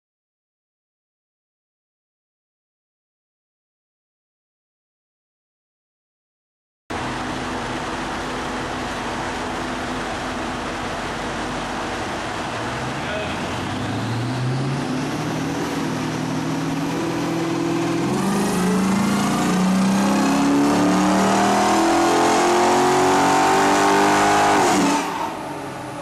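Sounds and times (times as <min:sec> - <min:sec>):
car engine revving: 0:11.0 - 0:26.0.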